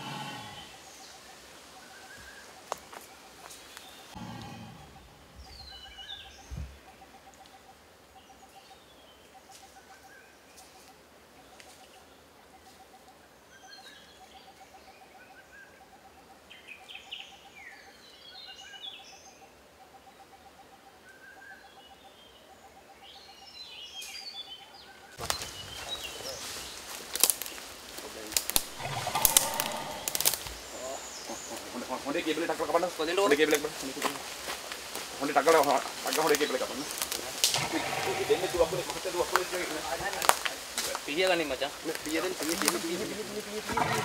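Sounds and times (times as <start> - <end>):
birds chirping and whistling: 0.0 - 7.5, 28.7 - 31.9
low pulsing bird call: 0.0 - 8.8, 28.7 - 32.0
sudden burst of noise: 37.4 - 39.0.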